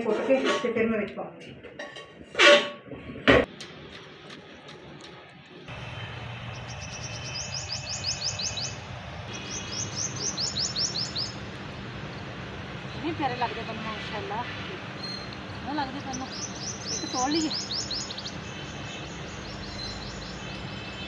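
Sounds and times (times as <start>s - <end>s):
songbird chirping: 6.4s - 11.4s, 15.0s - 21.0s.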